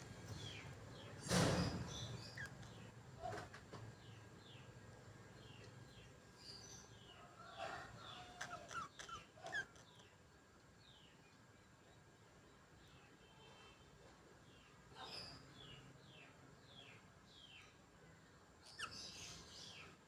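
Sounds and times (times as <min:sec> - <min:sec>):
budgerigars chirping: 0:00.3 - 0:02.9.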